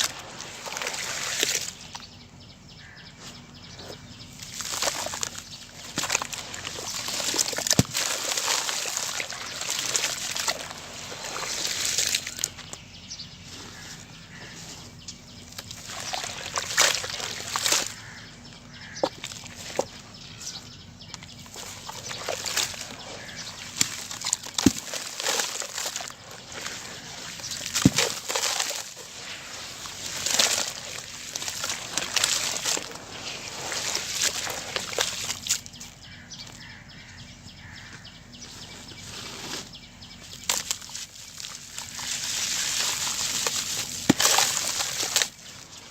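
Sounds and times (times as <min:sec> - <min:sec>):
gritty grains trickling: 0:00.0 - 0:02.0, 0:04.3 - 0:12.8, 0:15.4 - 0:18.1, 0:21.2 - 0:35.8, 0:38.6 - 0:45.9
sharp cracks of breaking pieces: 0:07.1 - 0:09.1, 0:23.7 - 0:26.1, 0:27.6 - 0:29.0.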